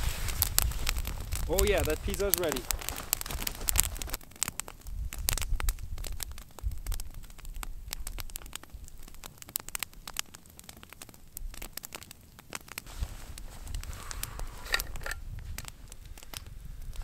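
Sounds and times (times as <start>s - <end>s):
sharp pops and snaps: 0.0s - 17.0s
wood fire crackling: 0.0s - 17.0s.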